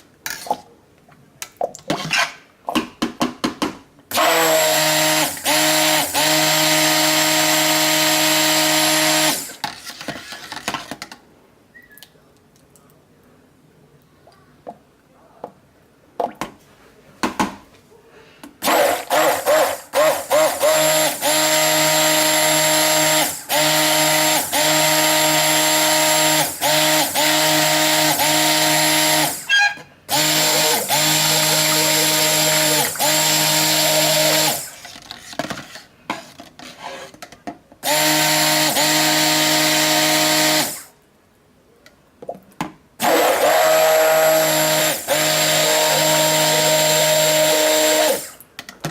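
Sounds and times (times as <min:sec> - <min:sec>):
stick blender motor hum: 0:04.1 - 0:09.6, 0:18.6 - 0:34.9, 0:37.8 - 0:40.9, 0:43.0 - 0:48.3.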